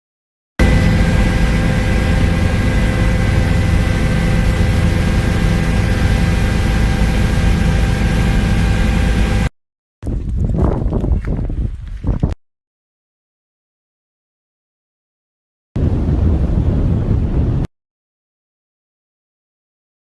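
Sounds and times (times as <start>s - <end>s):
engine drone with fixed tones: 0.6s - 9.5s.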